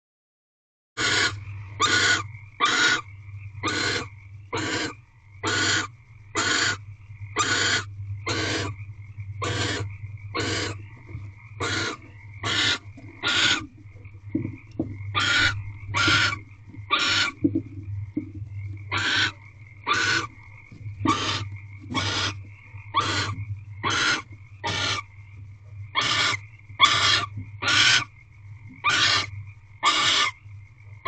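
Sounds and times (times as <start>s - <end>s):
owl hissing snore calls: 1.0s - 6.8s, 7.4s - 8.8s, 9.4s - 11.0s, 11.6s - 13.8s, 15.1s - 17.4s, 18.9s - 20.4s, 21.0s - 25.1s, 25.9s - 28.1s, 28.8s - 30.4s
low electrical hum: 1.0s - 31.0s.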